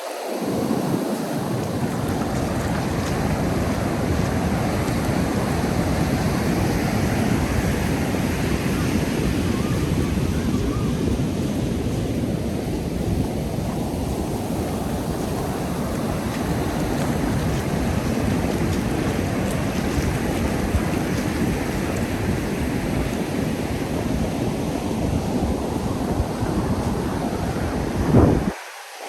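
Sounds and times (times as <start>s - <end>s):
wind buffeting microphone: 0.0s - 28.6s
ocean surf washing onto beach: 0.0s - 29.0s.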